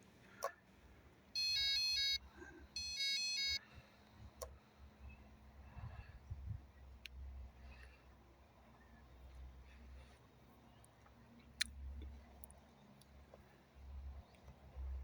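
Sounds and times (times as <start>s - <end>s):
rapid electronic warning beeps: 1.4s - 2.2s, 2.8s - 3.6s.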